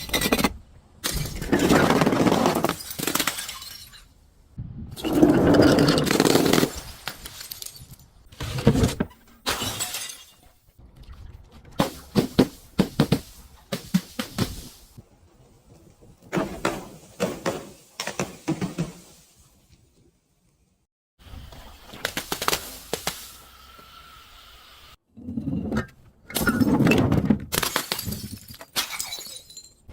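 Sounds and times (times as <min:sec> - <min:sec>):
glass bottle shattering: 0:02.6 - 0:04.1, 0:09.4 - 0:10.5, 0:27.5 - 0:29.9
broken glass crunching: 0:27.5 - 0:29.8.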